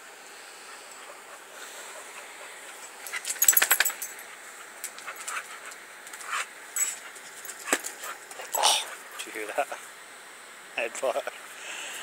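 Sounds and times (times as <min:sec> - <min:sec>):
dog collar tags jingling: 0:03.3 - 0:04.2, 0:06.8 - 0:07.7.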